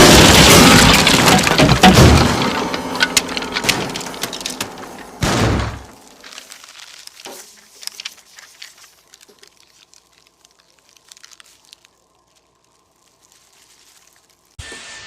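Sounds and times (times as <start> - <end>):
debris clicking and crackling: 0.0 - 14.6.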